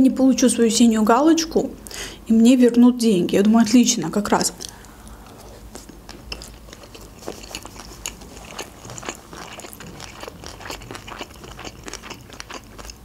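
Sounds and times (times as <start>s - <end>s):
chewing with wet clicks and crunches: 5.7s - 13.0s.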